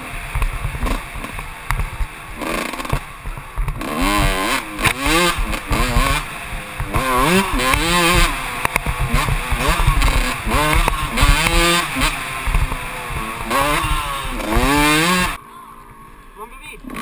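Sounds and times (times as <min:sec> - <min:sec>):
two-stroke motorcycle engine revving: 0:00.0 - 0:16.2, 0:16.8 - 0:17.0.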